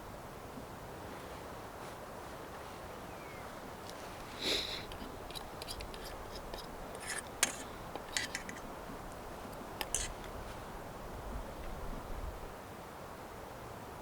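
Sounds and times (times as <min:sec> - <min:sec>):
faint steady hiss: 0:00.0 - 0:14.0
small objects rustling: 0:03.5 - 0:10.8
brief scratches: 0:04.3 - 0:08.7, 0:09.8 - 0:10.4.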